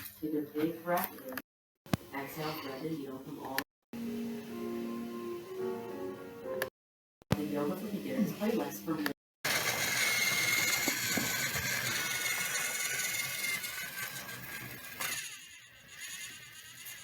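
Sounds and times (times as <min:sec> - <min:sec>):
motor running with hiss and whine: 0:09.5 - 0:15.1.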